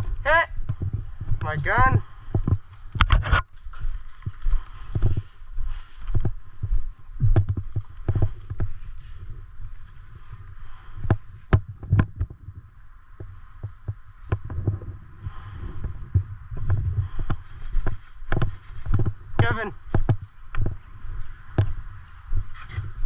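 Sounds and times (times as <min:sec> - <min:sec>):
low footstep thuds: 0:00.0 - 0:03.0, 0:03.6 - 0:22.5
clothing and gear rustling: 0:02.3 - 0:11.9, 0:20.6 - 0:23.0.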